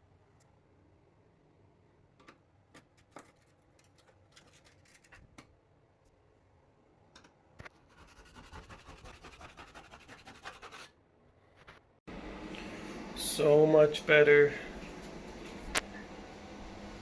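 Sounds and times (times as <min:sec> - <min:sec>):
fast scratching strokes: 0:07.7 - 0:11.8.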